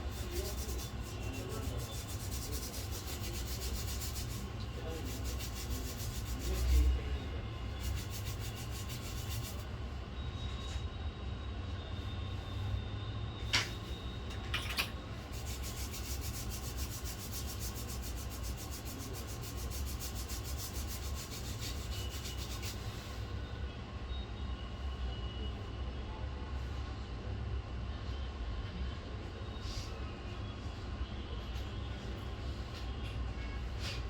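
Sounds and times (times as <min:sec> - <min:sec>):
rapid scrubbing strokes: 0:00.0 - 0:07.0, 0:07.7 - 0:09.6, 0:15.3 - 0:23.0.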